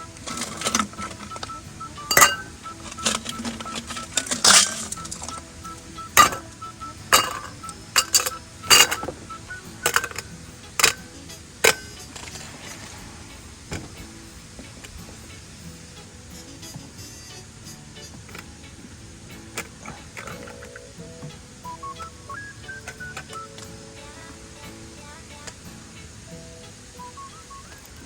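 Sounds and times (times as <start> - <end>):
cookware and utensils clinking: 0.1 - 12.9, 19.4 - 21.8.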